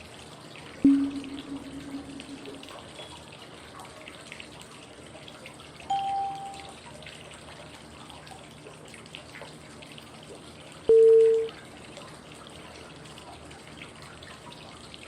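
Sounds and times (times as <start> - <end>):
flowing water white noise: 0.8 - 3.1, 5.9 - 6.7
short cue tone: 0.8 - 3.1, 5.9 - 6.7, 10.9 - 11.5.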